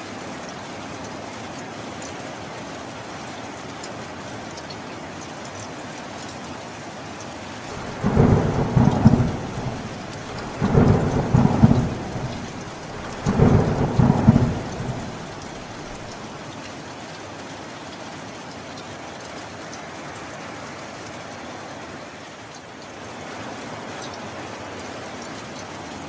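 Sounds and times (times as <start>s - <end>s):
steady rain: 0.0s - 26.0s
thunder rolling: 7.7s - 16.2s.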